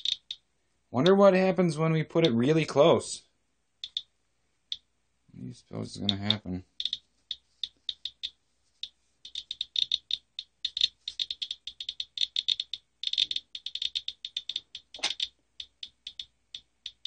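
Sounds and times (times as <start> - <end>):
geiger counter clicking: 0.0 - 0.4, 3.8 - 4.1, 4.7 - 4.9, 5.8 - 17.0.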